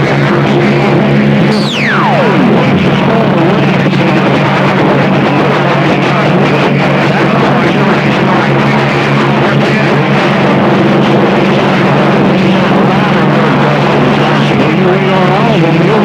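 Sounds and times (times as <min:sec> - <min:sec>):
steady low hum: 0:00.0 - 0:05.4
garbled radio voices: 0:00.0 - 0:10.4
radio static: 0:00.0 - 0:10.5
warbling radio squeals: 0:01.4 - 0:03.6.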